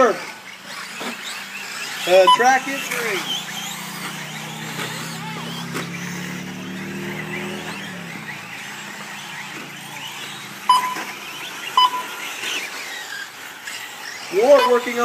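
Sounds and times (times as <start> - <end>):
electric motors whining: 0.0 - 15.0
short electronic beep: 2.3 - 2.5, 10.7 - 11.2, 11.8 - 12.2, 14.6 - 14.9.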